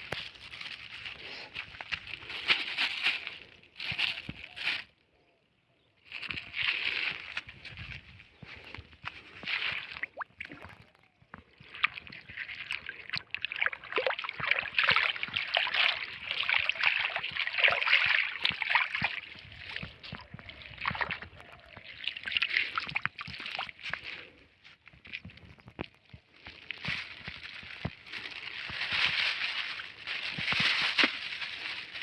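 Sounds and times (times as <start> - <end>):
river water splashing: 12.3 - 19.7.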